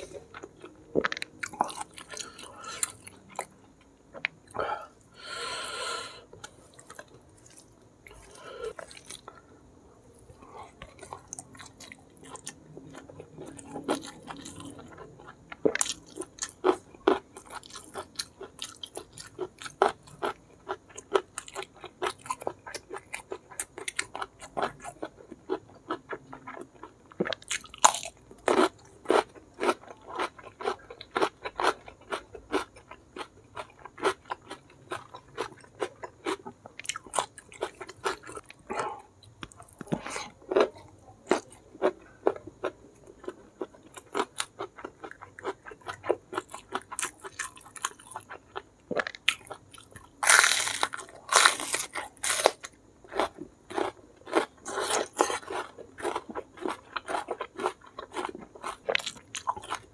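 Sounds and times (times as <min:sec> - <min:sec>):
crisp crunches of cucumber: 0:43.2 - 0:59.8.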